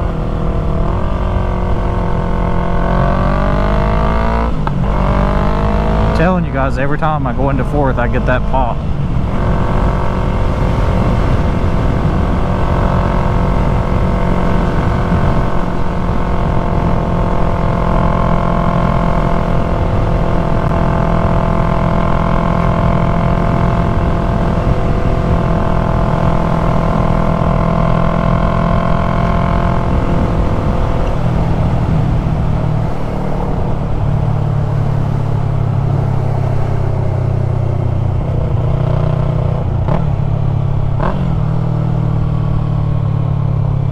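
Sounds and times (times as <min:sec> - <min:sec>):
motorcycle engine running: 0:00.0 - 0:43.9
wind rush: 0:08.7 - 0:17.6, 0:28.8 - 0:36.8.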